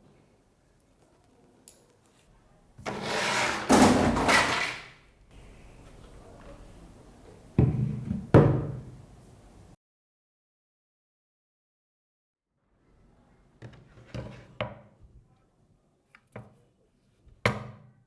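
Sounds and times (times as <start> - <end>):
rough scraping noise: 2.8 - 4.9.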